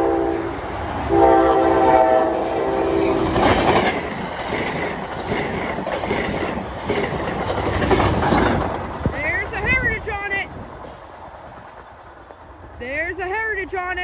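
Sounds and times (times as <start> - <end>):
train horn: 0.0 - 3.5
train wheels rumbling on rails: 0.0 - 14.0.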